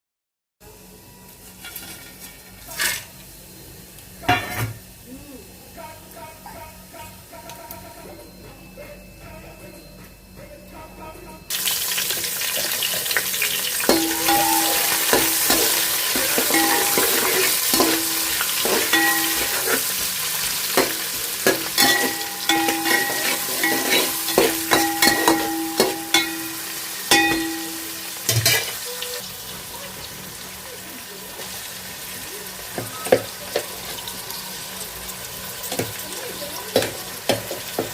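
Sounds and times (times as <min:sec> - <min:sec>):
food sizzling in hot oil: 0:11.5 - 0:37.9
metal spoon scraping a pot: 0:13.9 - 0:20.0, 0:20.7 - 0:27.6.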